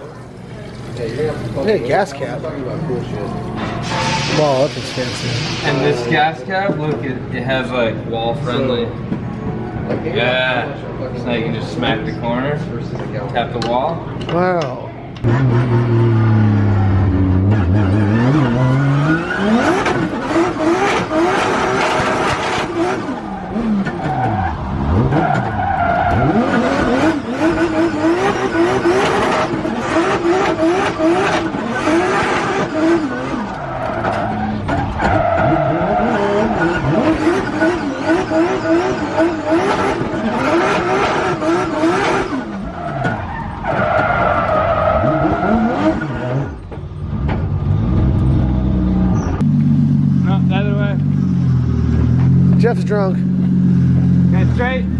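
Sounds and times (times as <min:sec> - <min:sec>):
car engine revving: 0:15.2 - 0:54.9.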